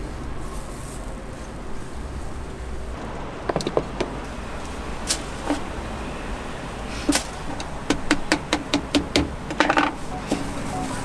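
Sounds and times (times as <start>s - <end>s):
sharp taps and clicks: 7.1s - 11.0s.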